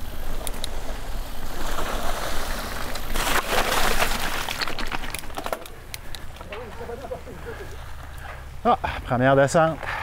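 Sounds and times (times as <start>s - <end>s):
bike tyres crunching over gravel: 0.0s - 9.4s
bike clicks and knocks: 2.8s - 6.8s.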